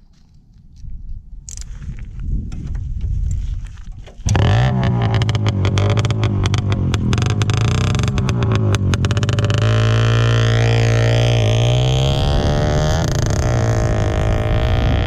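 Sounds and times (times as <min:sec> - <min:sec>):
two-stroke moped engine: 0:04.2 - 0:14.9.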